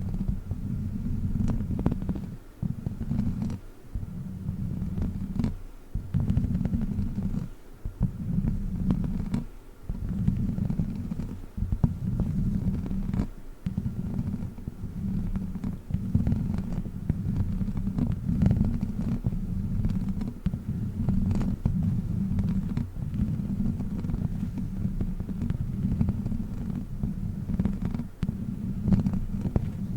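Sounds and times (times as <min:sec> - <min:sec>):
low rubbing strokes on microphone: 0:00.0 - 0:29.9.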